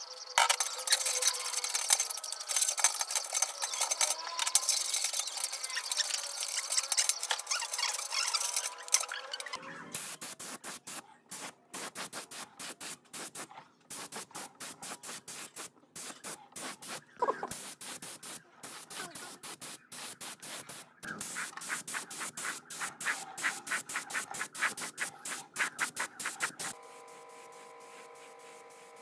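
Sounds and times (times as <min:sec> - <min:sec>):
abrasive strokes on workpiece: 0:00.3 - 0:10.1.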